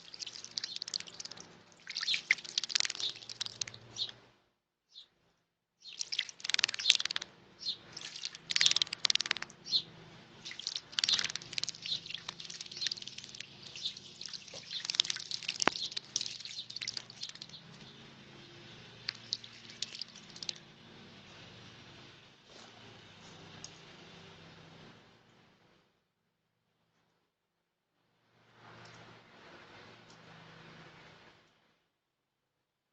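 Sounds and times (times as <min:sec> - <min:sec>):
bird splashing in water: 0:00.0 - 0:04.0, 0:05.8 - 0:07.3, 0:07.9 - 0:09.5, 0:10.4 - 0:17.6, 0:19.0 - 0:20.6.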